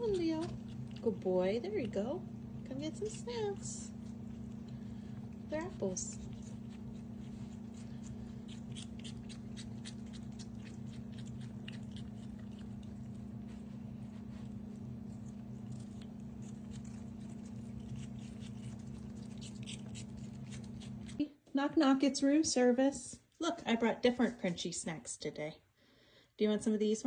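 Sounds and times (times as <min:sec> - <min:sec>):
animals chewing crunchy food: 0:00.0 - 0:21.3
steady low hum: 0:00.0 - 0:26.4.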